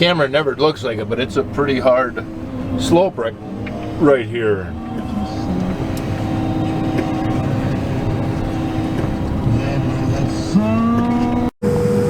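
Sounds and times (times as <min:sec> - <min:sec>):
combine harvester engine drone: 0:00.0 - 0:12.0
machine whine: 0:00.0 - 0:12.0.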